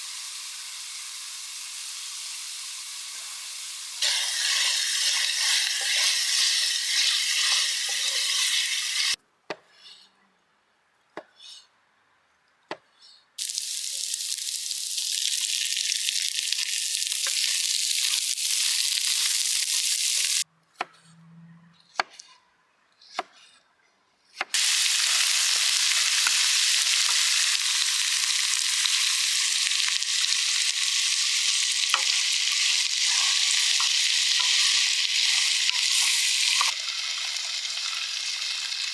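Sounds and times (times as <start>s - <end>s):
food sizzling in a pan: 0.0s - 9.2s, 13.4s - 20.4s, 24.6s - 38.9s.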